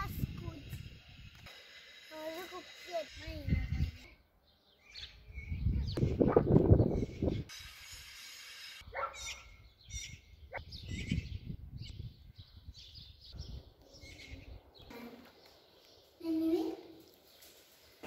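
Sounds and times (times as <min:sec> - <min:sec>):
birds chirping: 0:02.2 - 0:07.5, 0:08.7 - 0:18.0.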